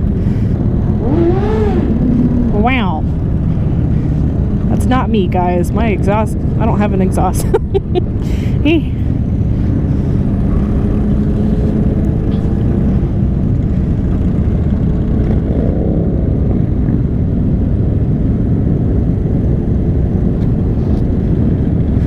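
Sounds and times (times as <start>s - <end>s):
motorcycle engine revving: 0.0s - 4.8s, 9.6s - 17.1s
motorcycle engines running: 0.0s - 22.0s
wind noise on microphone: 0.0s - 22.0s.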